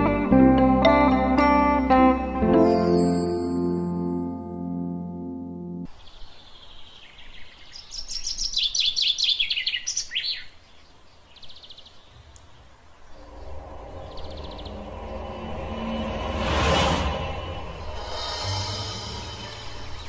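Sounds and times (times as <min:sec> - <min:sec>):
music: 0:00.0 - 0:05.9, 0:13.5 - 0:20.0
birds chirping: 0:05.9 - 0:20.0.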